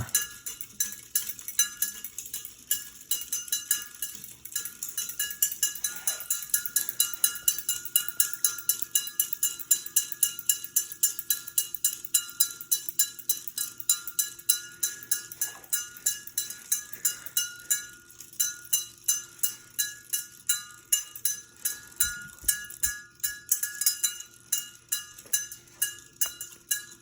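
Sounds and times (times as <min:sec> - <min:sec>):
ceiling fan running: 0:00.0 - 0:27.0
faint steady hum: 0:00.0 - 0:27.0
ringing metallic tick: 0:00.0 - 0:27.0.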